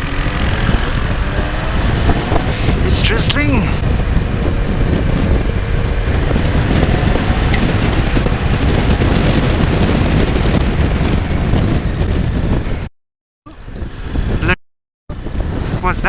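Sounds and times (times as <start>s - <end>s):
motorcycle engine running: 0.0s - 12.9s
wind rush on microphone: 0.0s - 12.9s, 13.5s - 16.0s.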